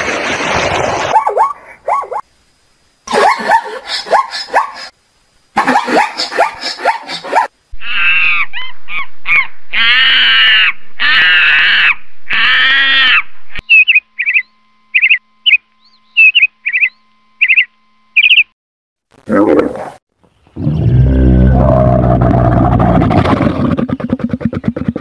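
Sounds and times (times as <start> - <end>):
zebras barking: 1.1 - 2.2, 3.1 - 4.9, 5.6 - 8.2
monkey calls: 3.1 - 4.9, 5.6 - 14.4
short high bird calls: 12.4 - 18.5.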